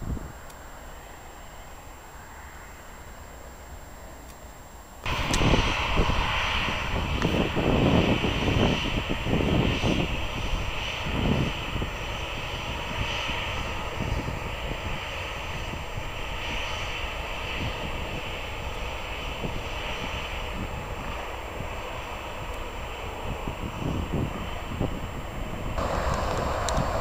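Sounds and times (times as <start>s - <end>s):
airliner engines rumbling: 0.0s - 27.0s.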